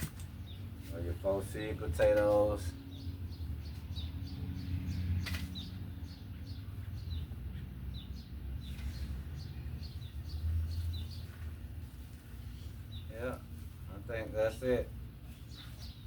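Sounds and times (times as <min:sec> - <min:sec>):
small bird chirping: 0:02.7 - 0:13.4, 0:15.3 - 0:16.0.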